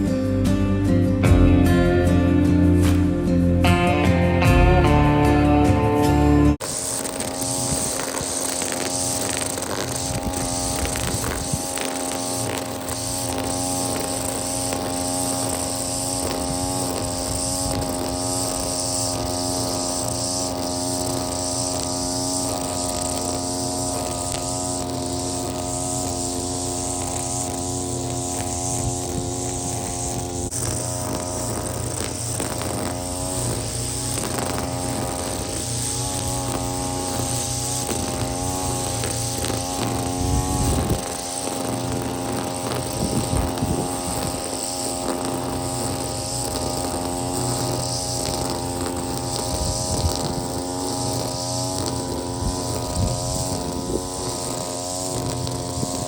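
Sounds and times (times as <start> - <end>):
small gas engine running: 0.0 - 56.0.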